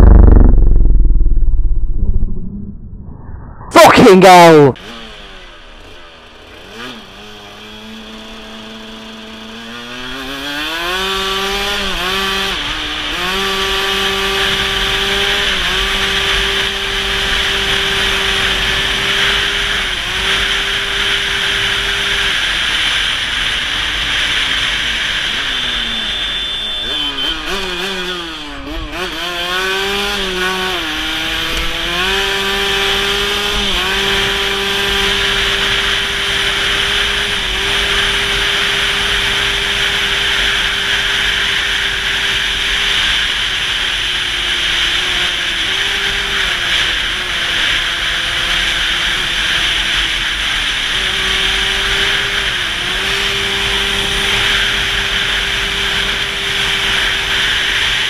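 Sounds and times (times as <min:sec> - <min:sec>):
motorcycle engine accelerating: 0:00.0 - 0:03.8, 0:04.8 - 0:58.0
wind rush on microphone: 0:00.0 - 0:03.8.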